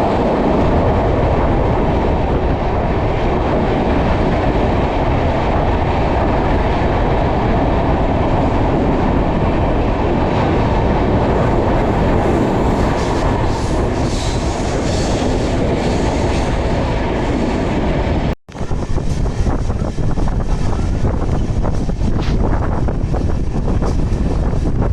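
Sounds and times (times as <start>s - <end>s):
train wheels rumbling on rails: 0.0s - 24.9s.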